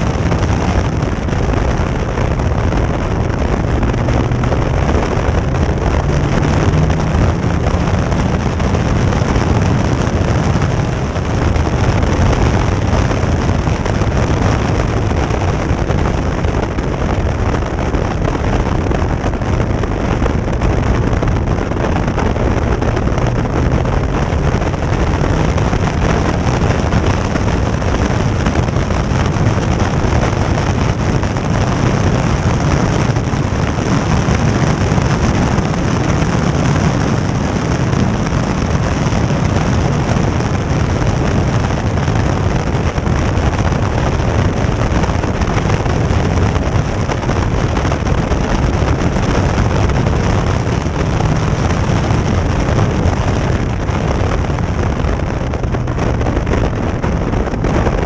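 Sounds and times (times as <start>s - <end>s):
car engine running at speed: 0.0s - 58.0s
wind buffeting microphone: 0.0s - 58.0s.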